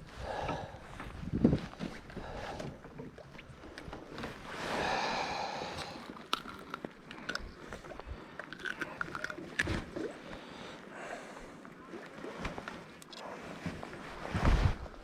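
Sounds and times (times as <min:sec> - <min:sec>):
fishing tackle clicking and knocking: 0:05.8 - 0:09.8.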